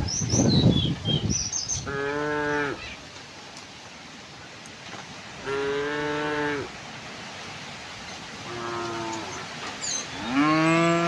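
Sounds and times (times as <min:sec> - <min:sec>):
bird chirping: 0:00.0 - 0:01.9, 0:09.0 - 0:11.0
cow mooing: 0:05.4 - 0:06.7, 0:08.5 - 0:09.4, 0:10.2 - 0:11.0.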